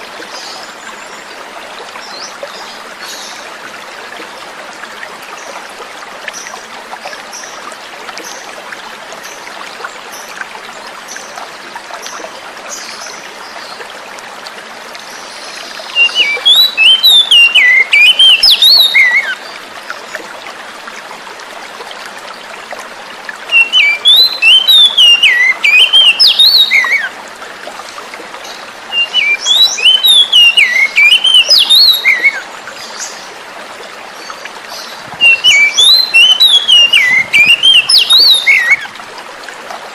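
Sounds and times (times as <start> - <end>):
running water trickling: 0.0 - 39.9
bird song whistled phrases: 16.0 - 19.4, 23.5 - 27.1, 28.9 - 32.4, 35.2 - 38.9.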